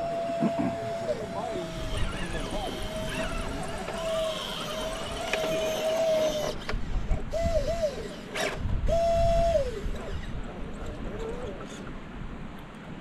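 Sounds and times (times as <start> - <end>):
electric motor whining: 0.0 - 10.4.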